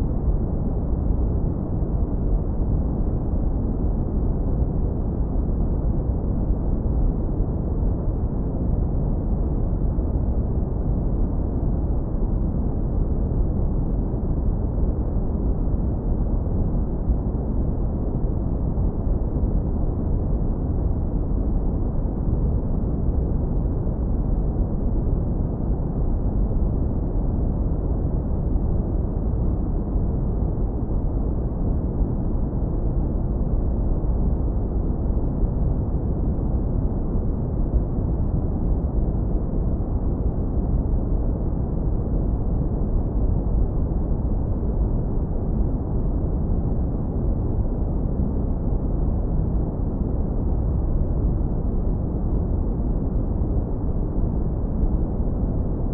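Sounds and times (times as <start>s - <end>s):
deep brown noise rumble: 0.0s - 55.9s.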